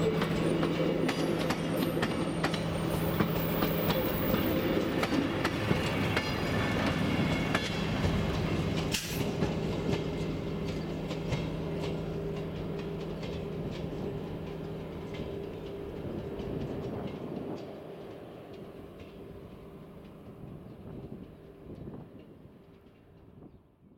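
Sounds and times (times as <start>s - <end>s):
train wheels clicking over rail joints: 0.1s - 23.4s.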